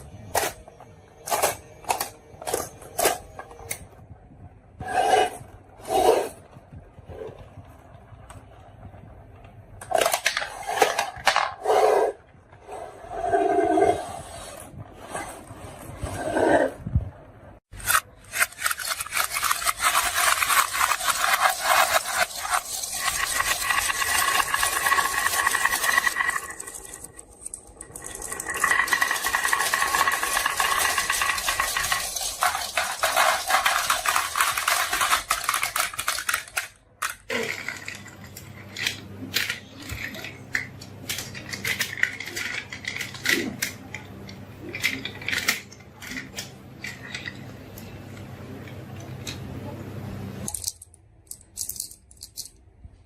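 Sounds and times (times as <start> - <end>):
marbles rolling and clattering: 17.8 - 47.6.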